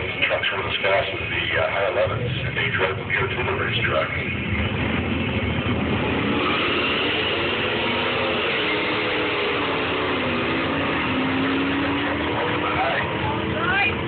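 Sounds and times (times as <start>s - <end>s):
car engines at full throttle: 0.0s - 14.0s.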